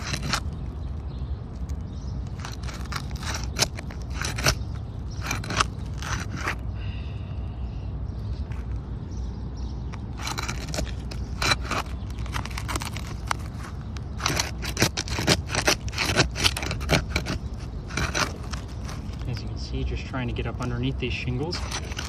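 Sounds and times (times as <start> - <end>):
adhesive seal strips cracking: 0.0 - 6.6, 10.2 - 19.3
tool scraping under shingles: 0.0 - 6.7, 9.6 - 22.0.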